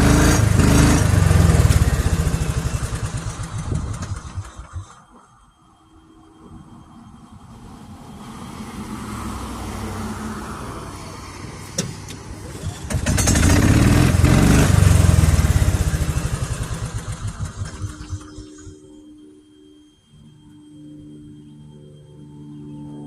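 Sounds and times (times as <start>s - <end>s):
vehicle engine passing by: 0.0s - 4.5s, 7.4s - 18.7s.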